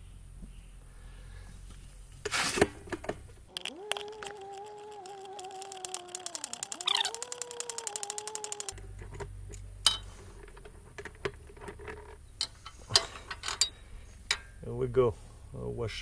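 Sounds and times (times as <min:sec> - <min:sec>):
ratchet whining and clicking: 0:03.5 - 0:08.8.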